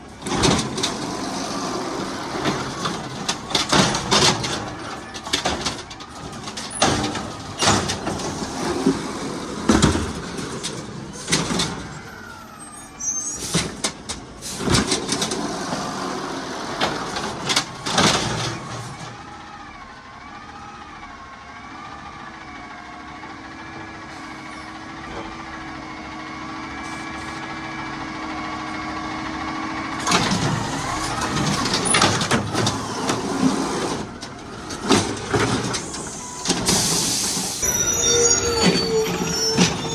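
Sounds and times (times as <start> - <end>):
hydraulic whine: 30.0 - 39.9.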